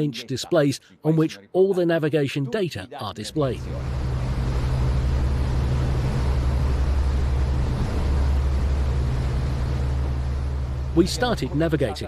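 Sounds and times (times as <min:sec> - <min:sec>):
diesel engines droning: 0:03.3 - 0:12.0.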